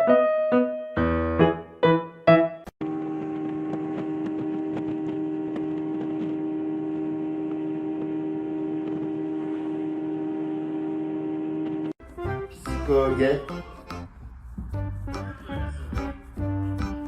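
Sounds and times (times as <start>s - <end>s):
electrical hum: 2.8s - 12.0s.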